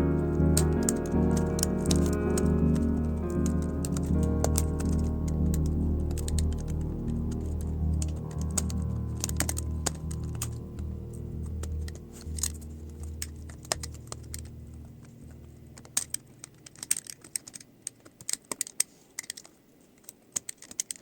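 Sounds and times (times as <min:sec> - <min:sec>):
low background music: 0:00.0 - 0:17.6.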